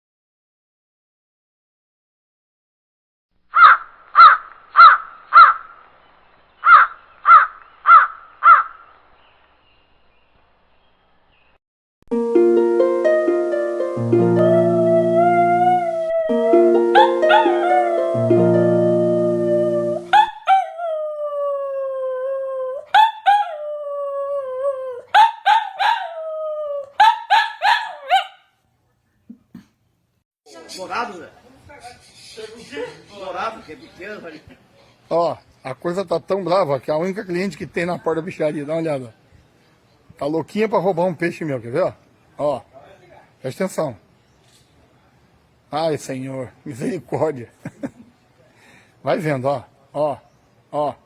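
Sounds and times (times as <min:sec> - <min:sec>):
bird calling loudly: 0:03.5 - 0:05.8, 0:06.6 - 0:09.0, 0:14.9 - 0:18.4, 0:19.2 - 0:20.7
dog howling: 0:14.4 - 0:28.3
dog yelping: 0:15.6 - 0:18.1, 0:19.5 - 0:20.8, 0:22.7 - 0:23.6, 0:24.9 - 0:26.2, 0:26.8 - 0:28.5.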